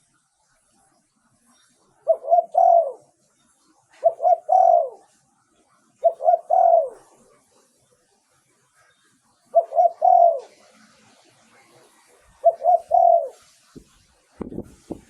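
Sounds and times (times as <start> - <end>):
dove cooing: 2.0 - 3.2, 3.9 - 5.2, 6.0 - 7.6, 9.5 - 11.0, 11.6 - 13.5.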